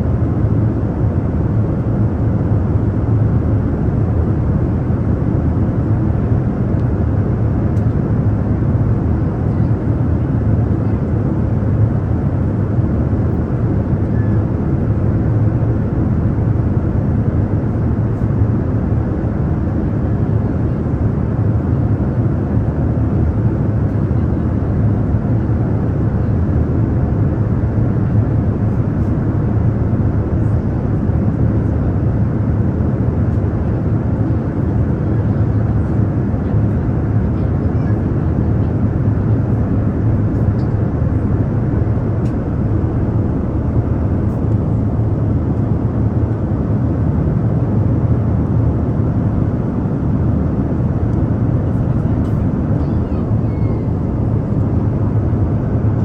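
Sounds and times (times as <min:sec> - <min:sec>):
airliner engine and airflow rumble: 0:00.0 - 0:56.0
faint steady hum: 0:49.6 - 0:56.0.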